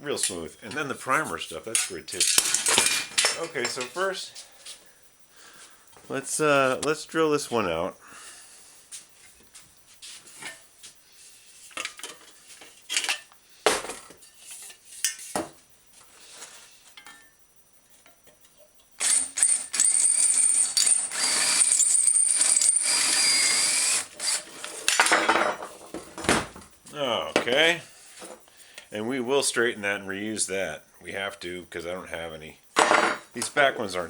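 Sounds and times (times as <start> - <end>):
metal parts clinking: 1.7 - 4.1, 19.0 - 22.8
electric drill whining: 19.0 - 24.9.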